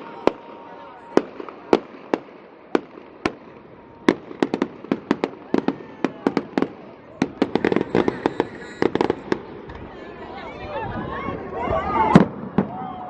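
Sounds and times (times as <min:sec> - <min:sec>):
fireworks bangs and cracks: 0:00.0 - 0:10.0, 0:11.3 - 0:13.0
fireworks crackling: 0:00.0 - 0:10.4.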